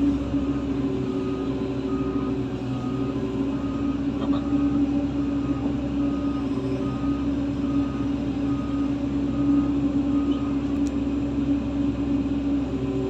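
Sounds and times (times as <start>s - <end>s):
diesel machinery engine running: 0.0s - 13.0s
reversing alarm beeping: 0.3s - 10.6s.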